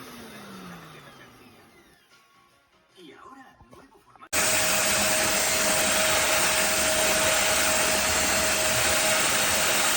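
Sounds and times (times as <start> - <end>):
vacuum cleaner running: 4.3 - 9.9.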